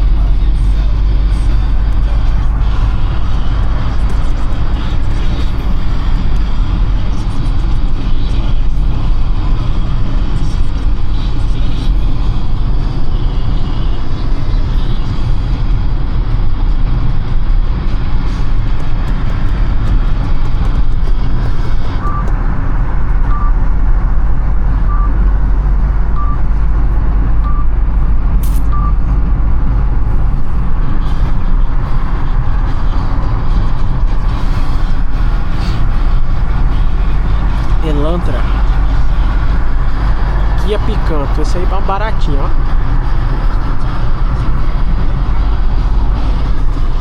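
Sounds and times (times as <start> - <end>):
car road and engine rumble: 0.0 - 47.0
short beeps: 22.0 - 22.3, 23.2 - 23.6, 24.8 - 25.2, 26.1 - 26.4, 27.4 - 27.7, 28.5 - 29.1.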